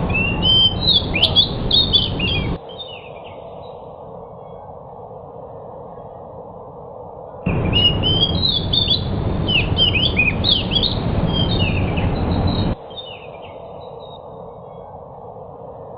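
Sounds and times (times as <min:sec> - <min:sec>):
bird singing high chirps: 0:00.0 - 0:03.8, 0:07.5 - 0:14.9
loud rushing noise: 0:07.5 - 0:12.8.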